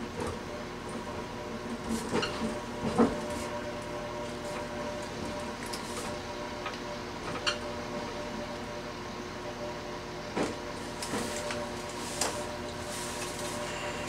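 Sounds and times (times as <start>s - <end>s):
diesel train humming: 10.7s - 14.0s.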